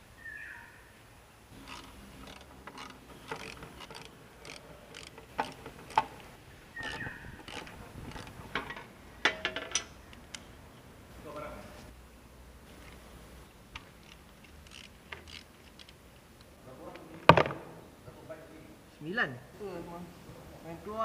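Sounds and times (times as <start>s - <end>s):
ratchet clicks: 1.5s - 10.5s, 13.7s - 16.5s
metal hand tools clinking: 1.6s - 10.4s.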